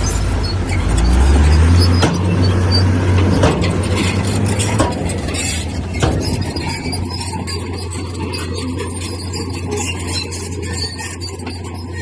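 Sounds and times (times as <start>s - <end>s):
sharp metallic knocks: 0.0s - 7.7s
diesel engine drone: 0.0s - 12.0s.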